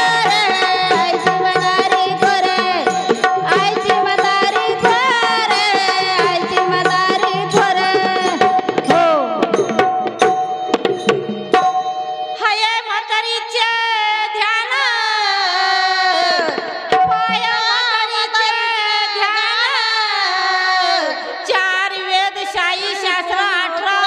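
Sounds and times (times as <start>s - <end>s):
woman singing: 0.0s - 9.6s, 12.4s - 24.0s
tabla strokes: 0.0s - 12.3s, 16.1s - 18.1s.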